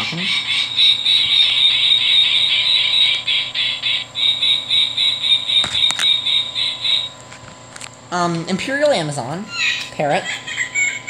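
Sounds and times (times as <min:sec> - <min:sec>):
recorded falcon call from toy: 0:00.0 - 0:07.1, 0:09.5 - 0:11.0.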